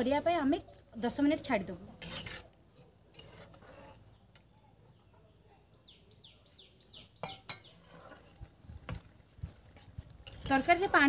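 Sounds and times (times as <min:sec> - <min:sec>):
faint outdoor background: 0:00.0 - 0:11.0
bird chirping: 0:04.0 - 0:07.8.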